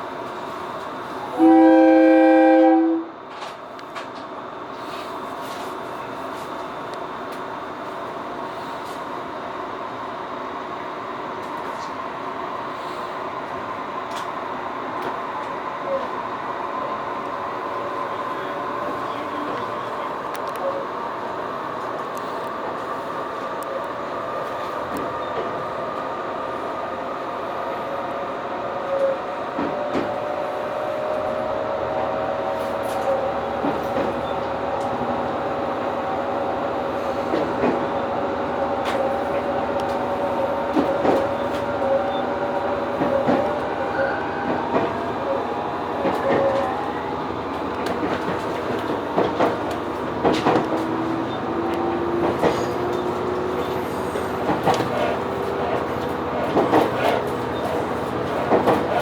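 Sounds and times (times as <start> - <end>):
diesel railcar engine drone: 0.0 - 59.0
wheels clicking over rail joints: 47.5 - 59.0.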